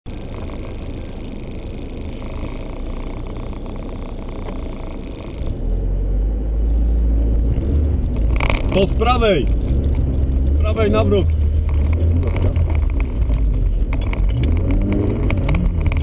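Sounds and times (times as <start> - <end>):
car engine idling and revving: 0.1 - 16.0.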